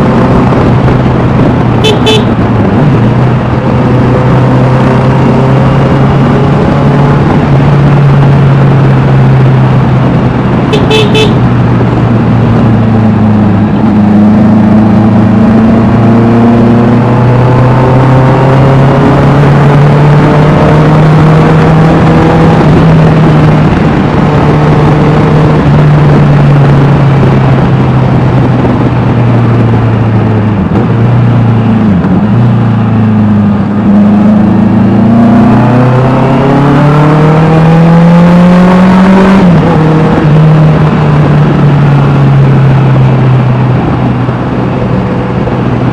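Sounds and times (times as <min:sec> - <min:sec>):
motorcycle engine running: 0:00.0 - 0:17.4.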